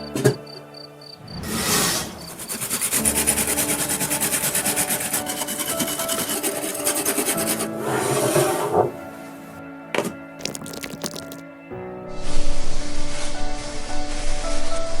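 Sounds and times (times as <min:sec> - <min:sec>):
file scraping a model car: 0:02.2 - 0:08.8.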